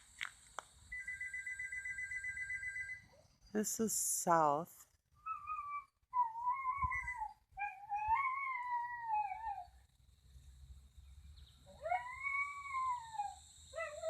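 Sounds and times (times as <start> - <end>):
dog howling: 5.3 - 9.7, 11.8 - 14.0.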